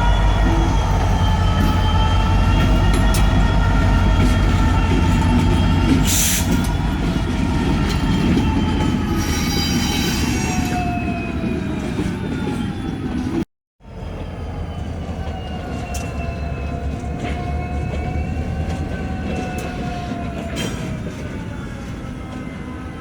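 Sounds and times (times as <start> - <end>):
locomotive engine rumble: 0.0 - 13.4.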